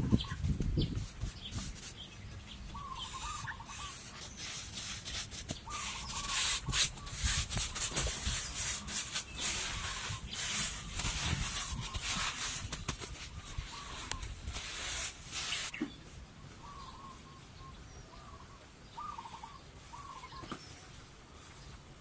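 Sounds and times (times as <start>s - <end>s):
scraping strokes: 0.1s - 2.1s, 3.0s - 15.8s
wavering bird calls: 2.6s - 4.5s, 5.5s - 7.9s, 13.4s - 14.3s, 15.5s - 20.8s.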